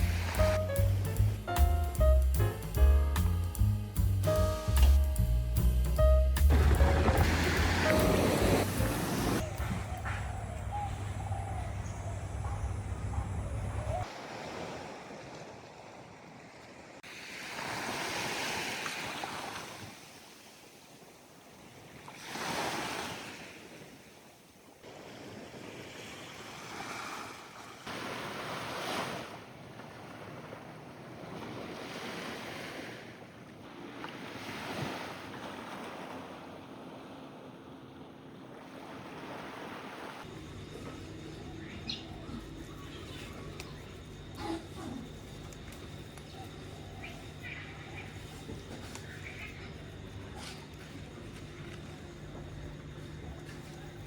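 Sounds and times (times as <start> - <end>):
sea waves washing ashore: 0.0 - 1.6, 6.4 - 10.7, 12.4 - 41.2.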